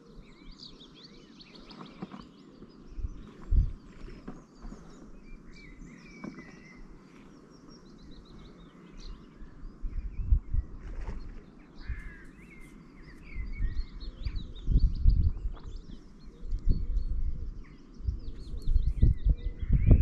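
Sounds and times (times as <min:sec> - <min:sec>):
small birds chirping: 0:00.0 - 0:20.0
low rumble in gusts: 0:02.9 - 0:04.5, 0:09.0 - 0:12.3, 0:13.1 - 0:20.0.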